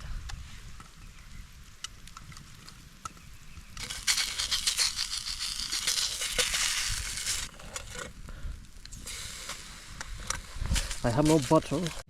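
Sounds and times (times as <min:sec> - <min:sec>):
plastic packaging crinkling: 0:03.8 - 0:07.5.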